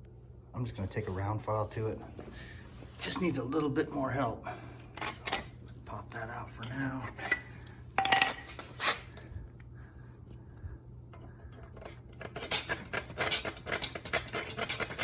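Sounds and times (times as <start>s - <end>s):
metal parts and bolt clinking: 5.0s - 5.6s.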